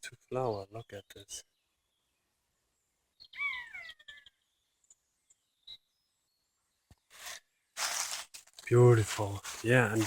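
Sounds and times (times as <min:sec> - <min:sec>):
brief rustle: 0:06.9 - 0:10.0.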